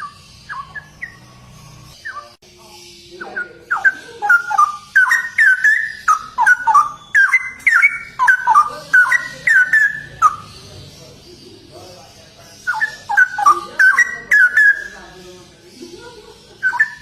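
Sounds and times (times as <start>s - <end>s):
bird singing whistled notes: 0.0s - 10.8s, 12.5s - 15.1s, 16.5s - 17.0s.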